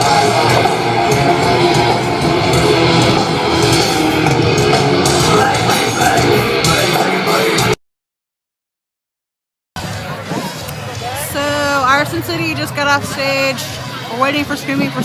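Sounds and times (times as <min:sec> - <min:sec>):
electric guitar: 0:00.0 - 0:07.8
live heavy rock band: 0:00.0 - 0:07.8.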